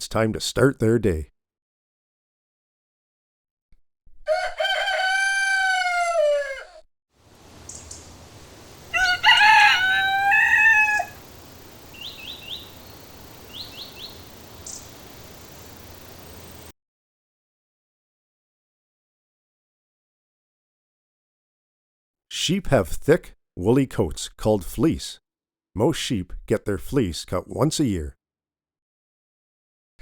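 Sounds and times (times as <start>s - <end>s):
rooster crowing: 4.3s - 6.8s, 8.8s - 14.2s
background hiss: 7.2s - 16.7s
faint high chirps: 7.6s - 16.7s.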